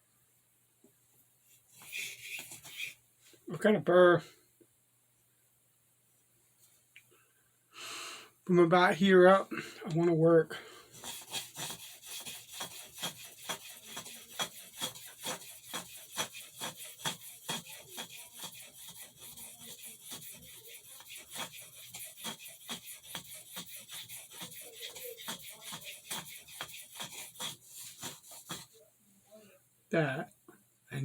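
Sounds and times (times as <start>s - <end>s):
knife rasping on sharpening stone: 11.0s - 28.7s.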